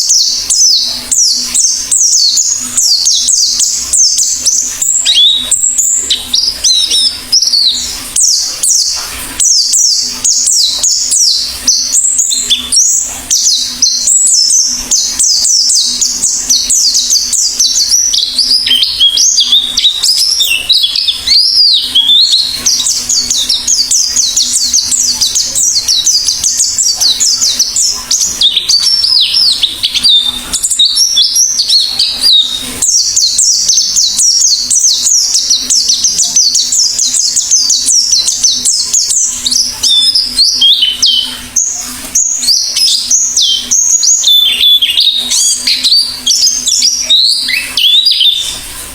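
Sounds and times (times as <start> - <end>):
bird twittering chirps: 0.0 - 48.9.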